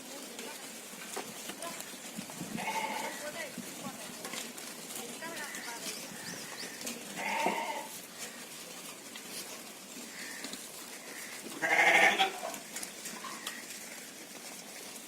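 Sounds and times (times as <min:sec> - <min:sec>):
sheep bleating: 0:02.4 - 0:03.4, 0:05.3 - 0:08.6, 0:10.1 - 0:13.7.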